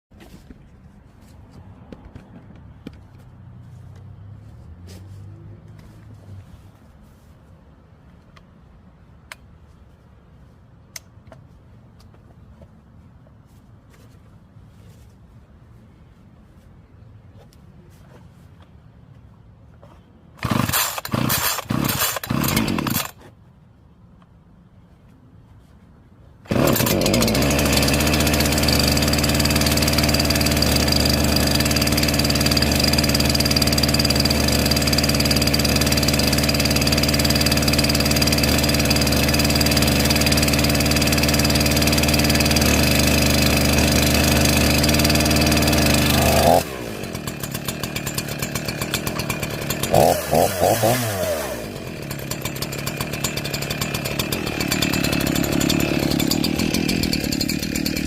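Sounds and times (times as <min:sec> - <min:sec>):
chainsaw engine running: 0:20.4 - 0:23.2, 0:26.5 - 0:58.0.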